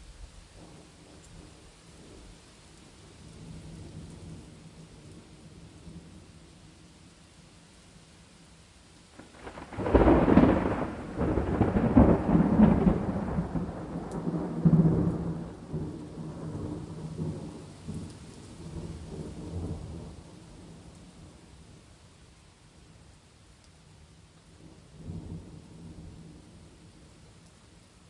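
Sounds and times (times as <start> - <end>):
steady rain: 0.0 - 28.0
thunder rumbling: 9.2 - 21.8.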